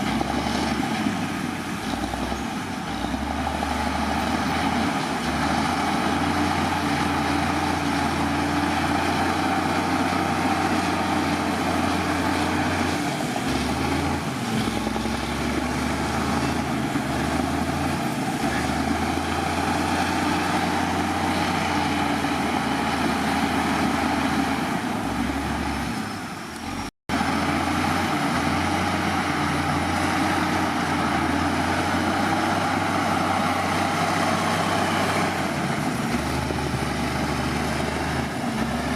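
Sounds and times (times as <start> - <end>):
heavy diesel machinery engine: 0.0 - 38.9.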